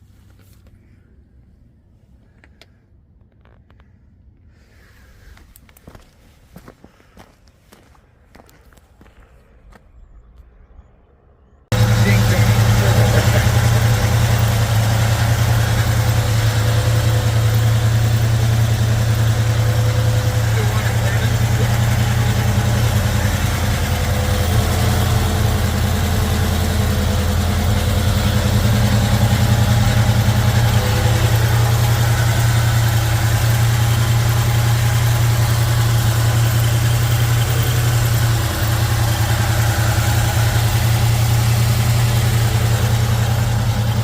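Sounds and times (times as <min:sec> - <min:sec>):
engine idling through exhaust: 0:11.7 - 0:44.0.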